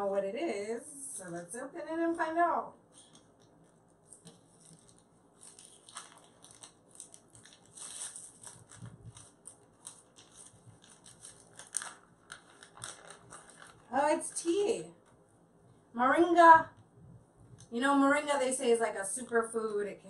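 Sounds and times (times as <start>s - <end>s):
packaging crinkling and tearing: 3.0s - 14.6s.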